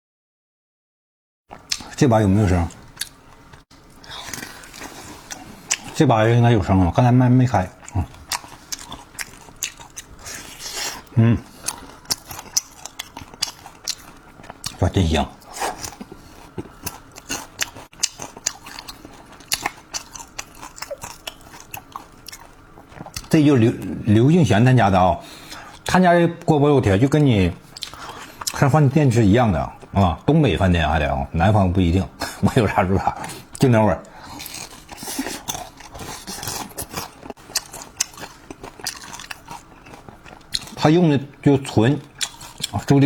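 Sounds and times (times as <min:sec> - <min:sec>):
person chewing crispy food: 0:01.5 - 0:06.5, 0:07.6 - 0:24.0, 0:27.0 - 0:28.8, 0:32.2 - 0:43.0.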